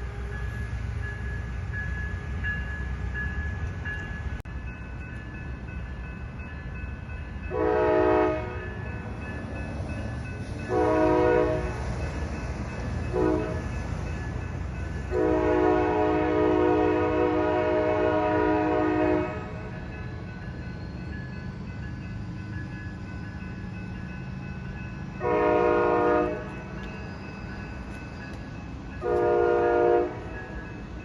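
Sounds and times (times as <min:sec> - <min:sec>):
low train rumble: 0:00.0 - 0:31.0
locomotive air horn blasts: 0:07.5 - 0:08.6, 0:10.7 - 0:11.8, 0:13.1 - 0:13.6, 0:15.1 - 0:19.6, 0:25.2 - 0:26.5, 0:29.0 - 0:30.4.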